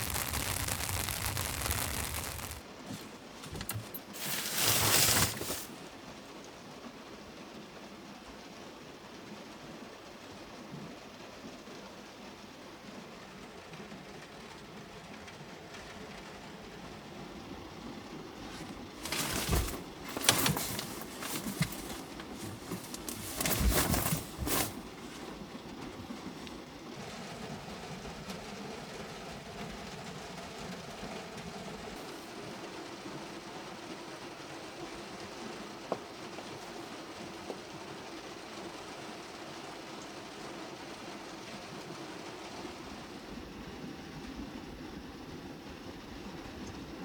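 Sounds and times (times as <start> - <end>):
handling and rustling noises: 0.0 - 5.9, 18.4 - 25.8
rain drumming on car roof: 0.0 - 6.0, 18.5 - 31.9.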